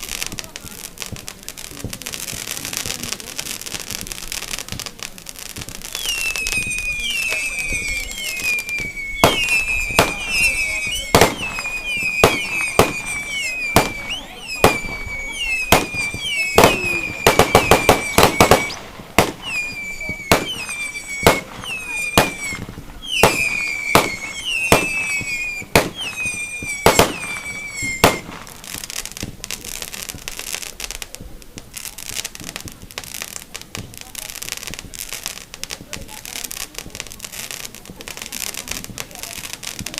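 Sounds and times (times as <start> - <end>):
firework crackling hiss: 0.0 - 39.9
firework cracks: 0.0 - 39.9
fireworks bangs: 0.0 - 39.9
descending firework whistles: 5.5 - 30.7.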